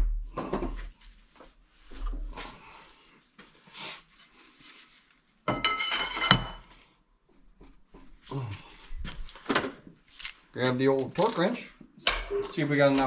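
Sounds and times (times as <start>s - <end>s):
metal tools clinking: 5.5s - 6.6s.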